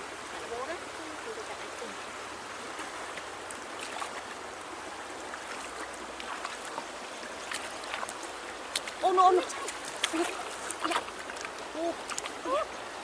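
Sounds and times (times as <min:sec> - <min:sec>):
river water flowing: 0:00.0 - 0:13.0
small water splashes: 0:00.0 - 0:13.0.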